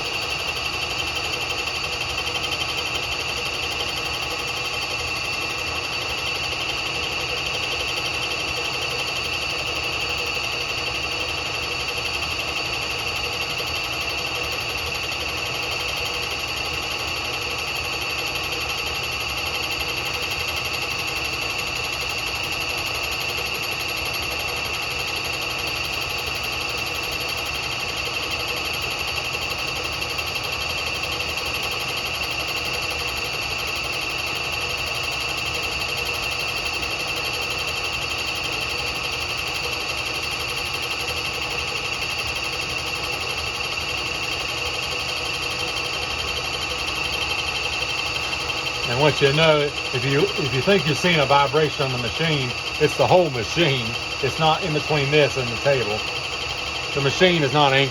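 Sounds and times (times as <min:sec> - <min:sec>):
milling machine high-pitched whine: 0:00.0 - 0:57.9
cutter cutting metal: 0:45.5 - 0:57.9.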